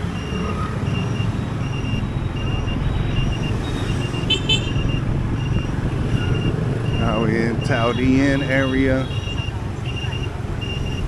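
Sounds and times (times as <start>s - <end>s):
motorbike engine: 0.0s - 11.0s
road and wind noise: 0.0s - 11.0s
horn toots: 7.1s - 9.5s.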